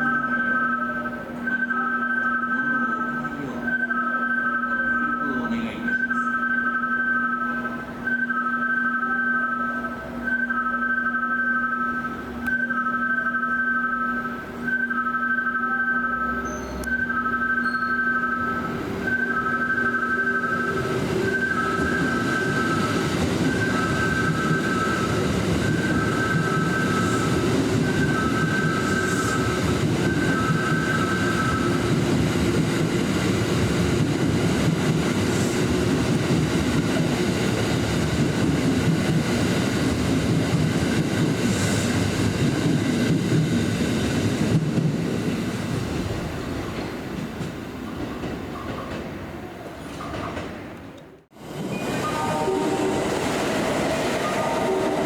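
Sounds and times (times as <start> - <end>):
two-tone electronic warning signal: 0.0 - 36.0, 51.7 - 55.0
electric train passing: 0.0 - 55.0.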